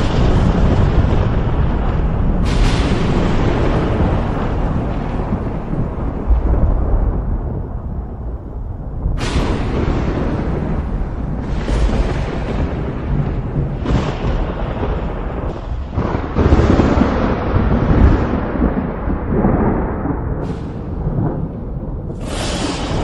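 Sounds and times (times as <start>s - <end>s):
steady rain: 0.0s - 23.0s
thunder rolling and cracking: 0.0s - 23.0s.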